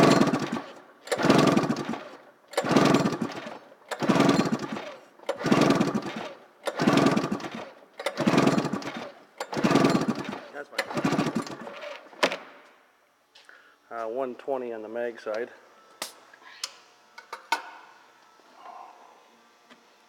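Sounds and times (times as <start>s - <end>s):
snowmobile engine cranked by pull starter: 0.0s - 12.2s.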